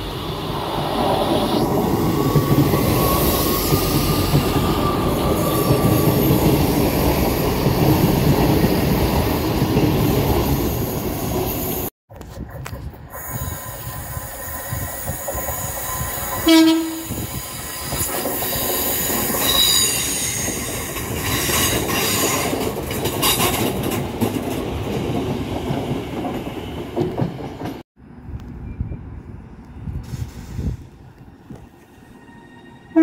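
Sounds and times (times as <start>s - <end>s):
train wheels rumbling on rail: 0.0s - 32.3s
train horn blast: 16.4s - 17.2s.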